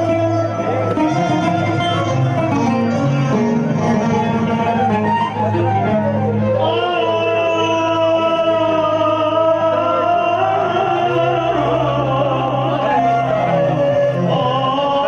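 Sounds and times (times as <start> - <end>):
instrumental drone: 0.0 - 15.0
man singing a long note: 3.2 - 15.0.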